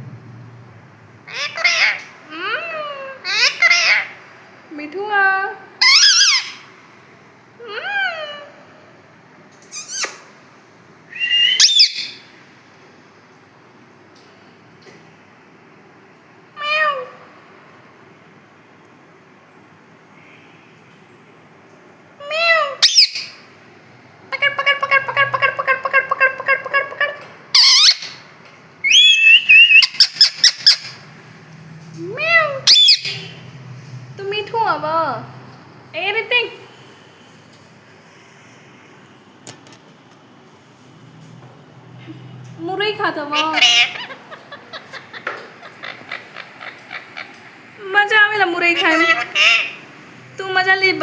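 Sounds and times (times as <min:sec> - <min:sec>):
parrot calls: 0:01.3 - 0:04.2, 0:05.8 - 0:06.7, 0:07.6 - 0:08.8, 0:11.1 - 0:12.3, 0:16.6 - 0:17.3, 0:22.2 - 0:23.4, 0:24.3 - 0:28.2, 0:28.8 - 0:31.1, 0:32.1 - 0:33.5, 0:43.3 - 0:47.8, 0:48.7 - 0:50.0.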